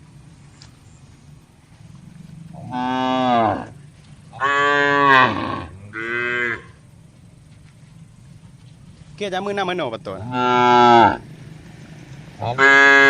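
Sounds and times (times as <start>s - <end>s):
cattle mooing: 2.5s - 6.8s, 10.1s - 11.3s, 12.4s - 13.0s.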